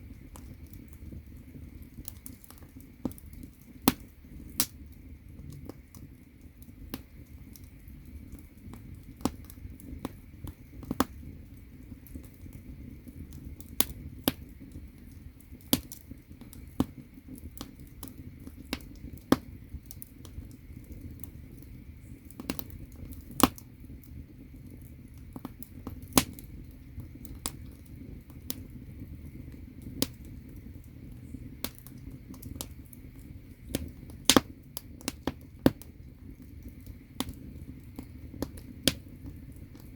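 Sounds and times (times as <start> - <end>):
firewood crackling and popping: 0.0 - 39.9
low rumble of fire: 0.0 - 39.9.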